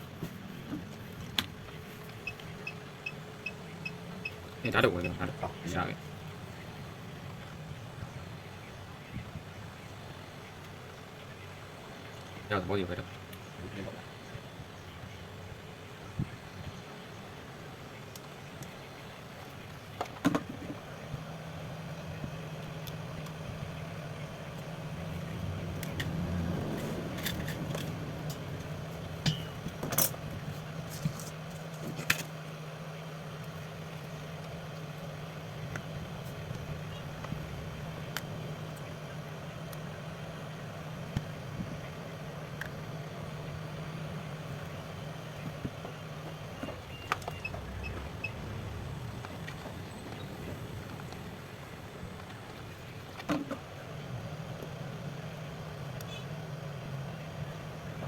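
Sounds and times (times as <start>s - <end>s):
electric hum: 15.1s - 58.0s.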